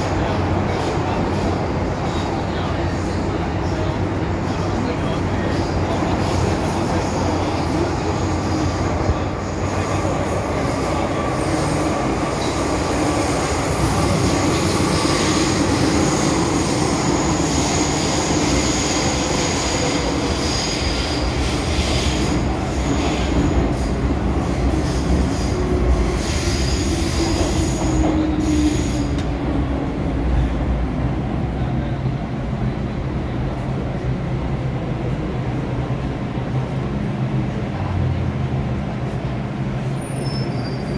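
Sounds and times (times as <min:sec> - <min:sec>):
train wheels rumbling on rails: 0:00.0 - 0:40.9
high wheel squeal: 0:39.9 - 0:40.9.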